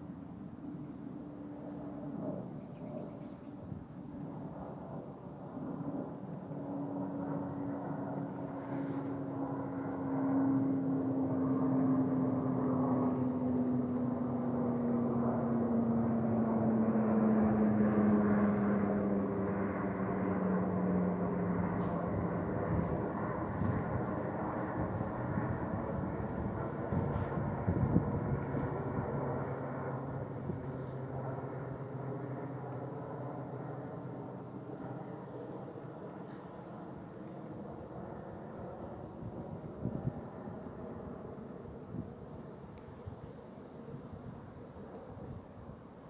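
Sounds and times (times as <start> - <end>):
airliner jet engines passing: 0.0 - 46.0.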